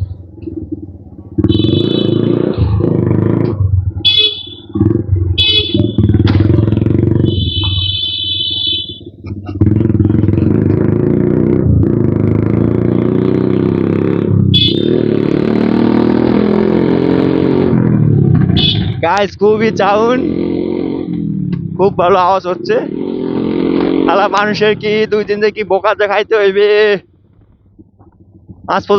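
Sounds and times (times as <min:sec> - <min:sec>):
motorcycle engine revving: 0:00.0 - 0:28.7
short high horn beeps: 0:07.2 - 0:09.1.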